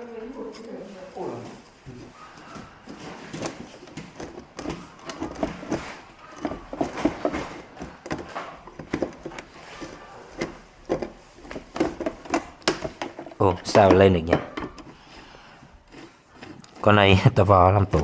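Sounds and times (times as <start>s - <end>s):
tools knocking on plastic casing: 11.7s - 14.8s.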